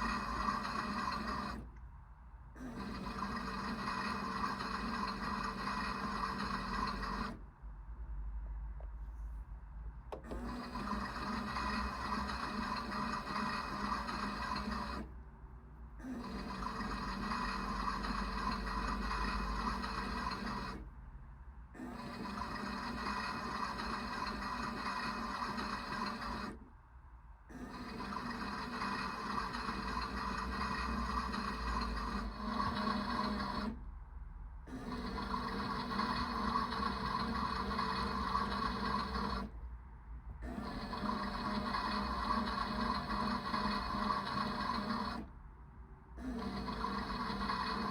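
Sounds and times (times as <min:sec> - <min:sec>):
small electric motor humming: 0:00.0 - 0:01.6, 0:16.0 - 0:20.8, 0:27.5 - 0:33.8, 0:34.7 - 0:39.5, 0:46.2 - 0:47.9.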